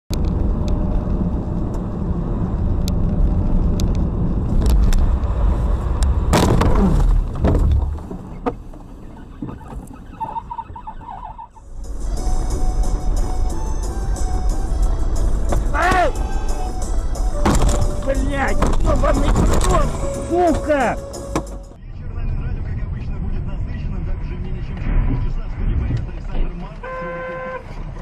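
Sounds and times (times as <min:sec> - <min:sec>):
car engine and tyre rumble: 0:00.1 - 0:28.0.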